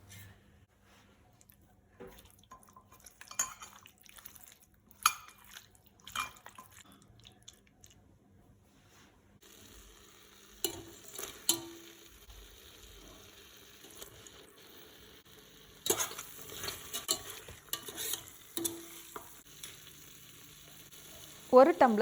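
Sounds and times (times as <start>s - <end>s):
metal spoon scraping a vessel: 15.8s - 19.8s.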